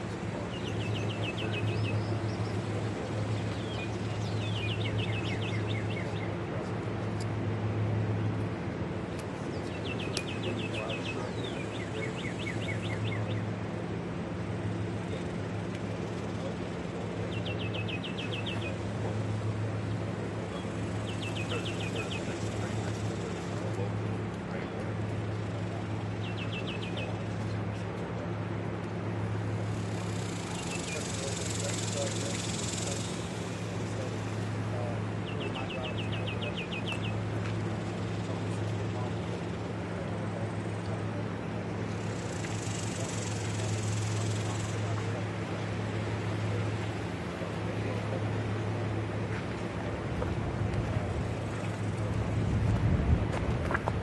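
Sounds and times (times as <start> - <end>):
low engine-like hum: 0.0 - 54.0
bird chirping trills: 0.4 - 6.4, 9.5 - 13.5, 16.4 - 23.8, 25.4 - 27.4, 29.6 - 37.3
bird chirping: 3.4 - 6.3, 9.5 - 13.4, 20.5 - 22.9.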